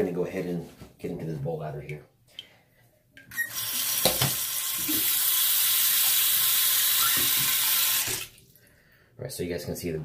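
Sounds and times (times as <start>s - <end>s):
water running into a sink: 3.3s - 8.4s.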